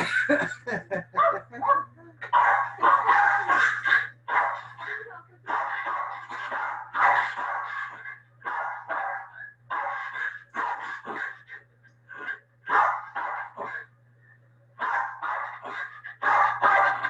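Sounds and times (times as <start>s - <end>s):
dog barking sharply: 1.2s - 7.9s, 8.5s - 11.4s, 12.7s - 13.8s, 14.8s - 17.0s.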